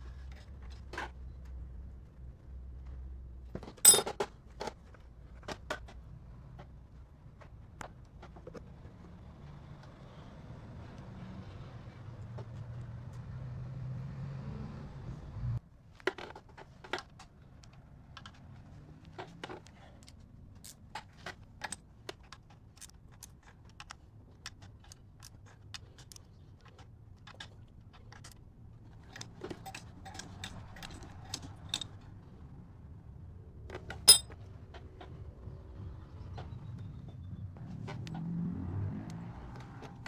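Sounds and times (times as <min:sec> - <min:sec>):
metal parts and tools clicking: 0:03.8 - 0:04.2, 0:20.0 - 0:32.0, 0:33.8 - 0:34.4.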